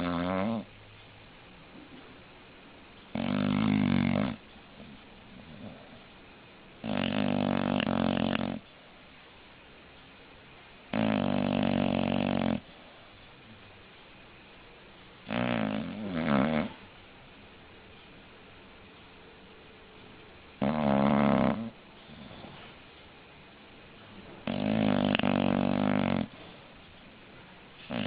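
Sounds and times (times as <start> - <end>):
dog snoring: 0.0 - 0.7, 3.1 - 6.0, 6.8 - 8.7, 10.9 - 12.9, 15.2 - 16.9, 20.6 - 22.8, 24.4 - 26.8, 27.8 - 28.0.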